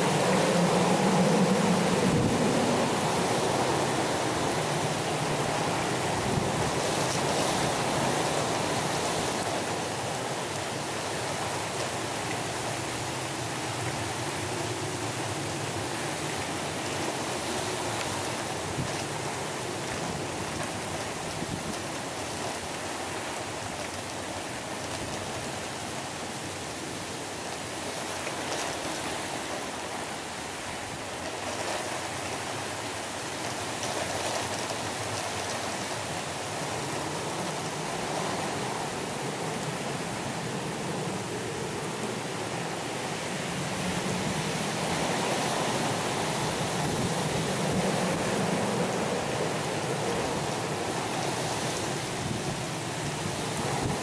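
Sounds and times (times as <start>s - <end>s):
gusty wind: 0.0s - 22.2s, 34.6s - 54.0s
heavy rain hissing: 0.0s - 27.9s, 34.5s - 54.0s.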